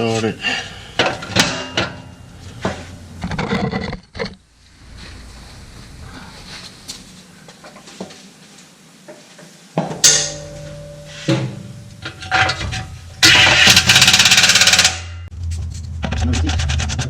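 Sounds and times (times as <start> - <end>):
power tool rattling: 13.2 - 15.0.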